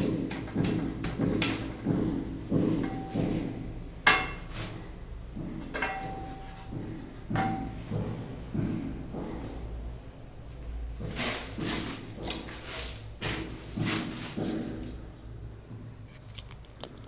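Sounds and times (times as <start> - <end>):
sharp knocks and taps: 0.3 - 3.5, 5.4 - 9.5.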